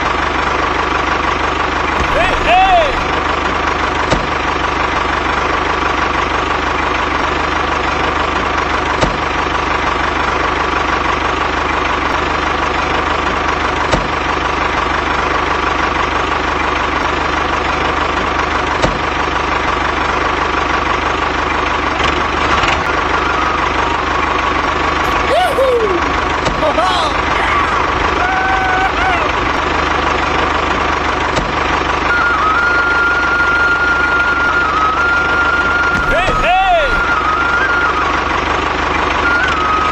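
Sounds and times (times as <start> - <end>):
engine idling: 1.9 - 3.2, 35.1 - 37.5.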